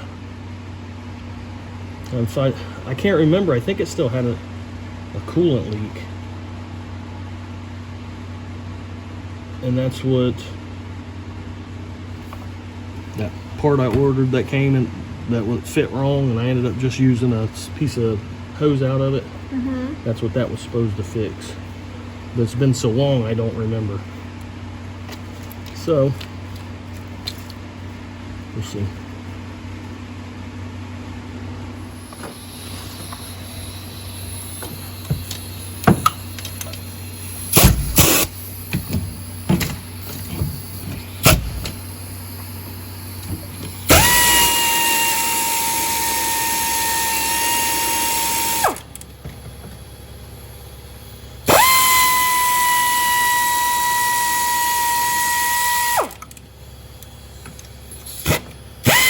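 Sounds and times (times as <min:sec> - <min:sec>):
power tool motor whirring: 0:31.9 - 0:49.0, 0:51.4 - 0:56.4, 0:57.9 - 0:59.0.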